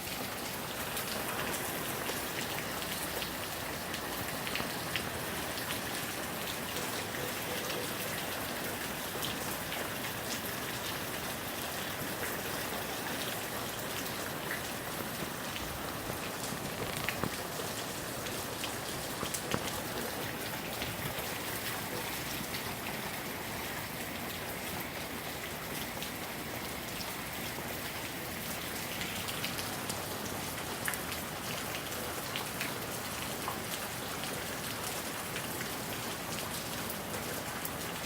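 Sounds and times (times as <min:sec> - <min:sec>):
steady rain falling: 0:00.0 - 0:38.0
raindrops tapping: 0:13.1 - 0:21.8.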